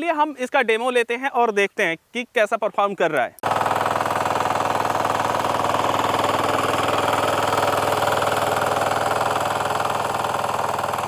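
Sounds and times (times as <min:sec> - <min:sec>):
diesel weeder engine running: 0:03.4 - 0:11.0.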